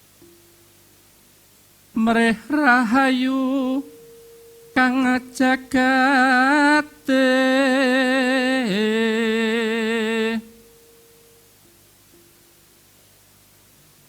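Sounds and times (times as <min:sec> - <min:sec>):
faint steady tone: 0:00.0 - 0:14.0
person singing long wavering notes: 0:02.0 - 0:11.4.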